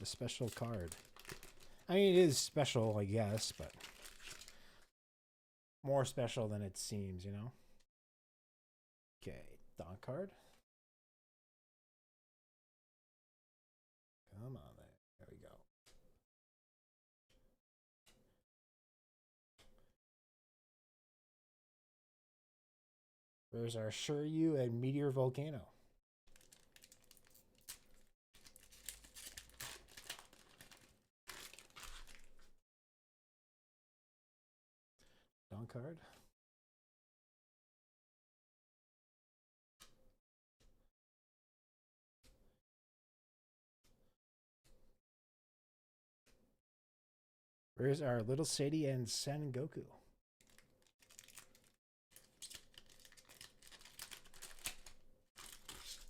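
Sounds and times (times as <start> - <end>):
trading cards clicking and rustling: 0.0 - 4.5, 50.5 - 56.0
foil wrapper crinkling and tearing: 0.0 - 4.8, 26.3 - 32.6, 50.4 - 56.0.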